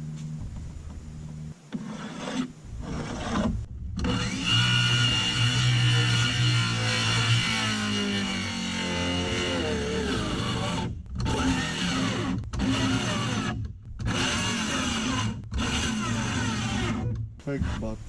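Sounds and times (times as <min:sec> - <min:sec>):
cordless power tool running: 0:04.0 - 0:17.0.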